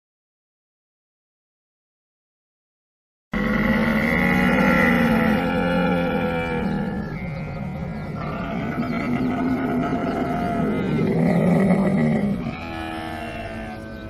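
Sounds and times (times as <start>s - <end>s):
camel calling: 3.4s - 14.0s.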